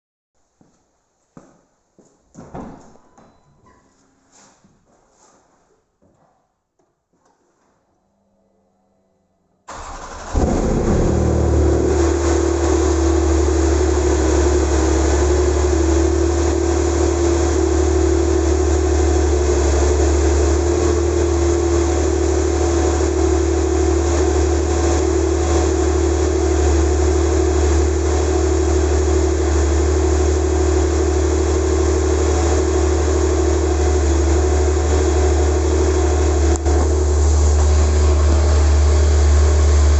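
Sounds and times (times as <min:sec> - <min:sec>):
car engine idling: 0:09.7 - 0:39.9.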